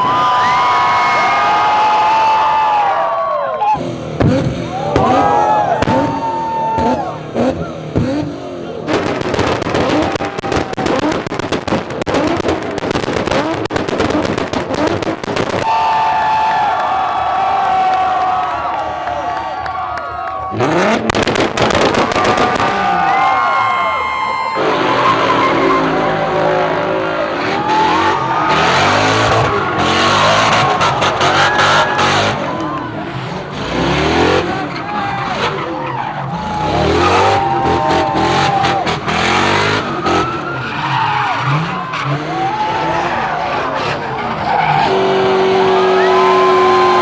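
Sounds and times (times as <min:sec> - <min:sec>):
car engine revving: 0:03.8 - 0:18.9, 0:20.5 - 0:23.8, 0:24.6 - 0:47.0
exhaust pops and cracks: 0:04.2 - 0:15.8, 0:20.9 - 0:23.2.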